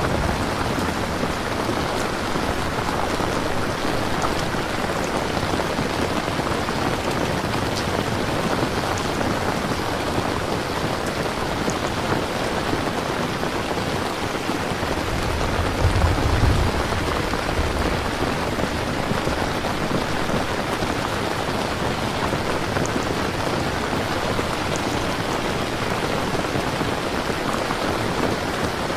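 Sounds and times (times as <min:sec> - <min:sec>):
heavy rain falling: 0:00.0 - 0:28.9
low rumble: 0:15.0 - 0:18.9.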